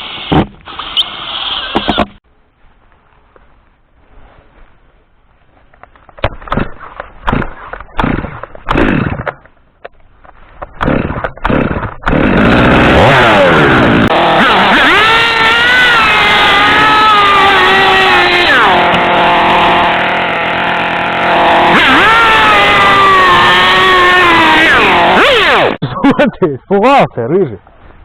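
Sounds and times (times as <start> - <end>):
small petrol engine running: 10.8 - 25.8.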